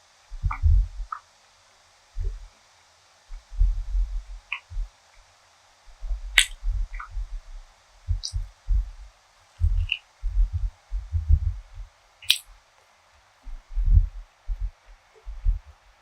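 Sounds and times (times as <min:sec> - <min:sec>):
deep muffled thumps: 0:00.3 - 0:01.1, 0:02.2 - 0:02.5, 0:03.3 - 0:04.9, 0:05.9 - 0:12.0, 0:13.5 - 0:15.8
sharp click: 0:06.4 - 0:07.1, 0:12.2 - 0:12.5
wet mouth clicks: 0:06.4 - 0:07.2, 0:09.7 - 0:10.0.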